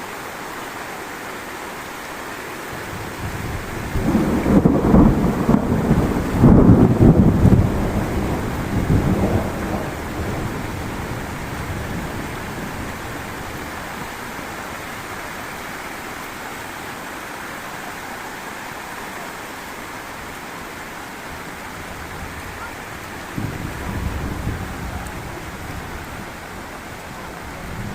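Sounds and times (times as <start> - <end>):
heavy rain: 0.0 - 27.9
thunder rumbling: 2.8 - 15.3, 21.4 - 27.9.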